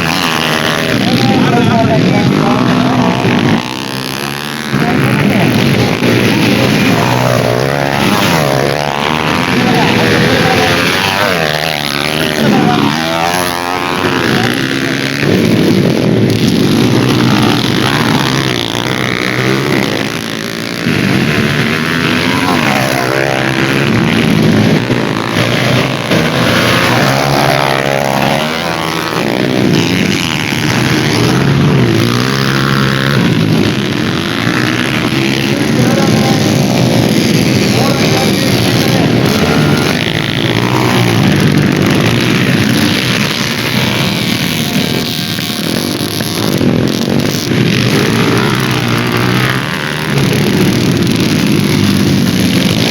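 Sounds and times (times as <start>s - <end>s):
dirt bike engines revving: 0.0s - 52.9s.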